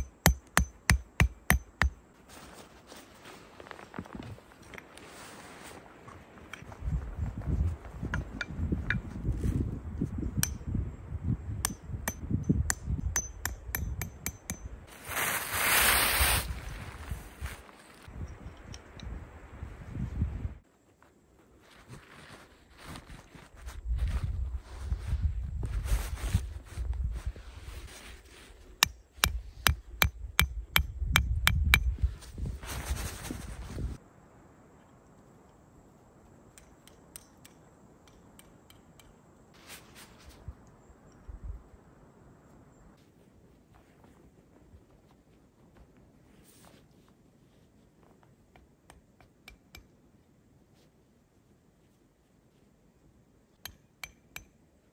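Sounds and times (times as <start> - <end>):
wind rumble on microphone: 6.6 - 14.9, 16.1 - 20.6, 23.5 - 28.2, 29.3 - 34.0, 40.3 - 41.8.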